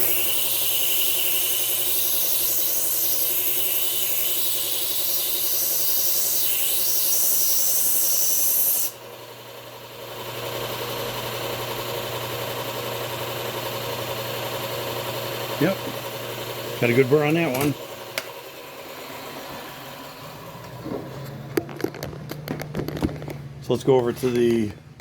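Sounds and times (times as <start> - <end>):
knife grinding on belt sharpener: 0.0 - 9.0
belt machine motor hum: 9.0 - 25.0.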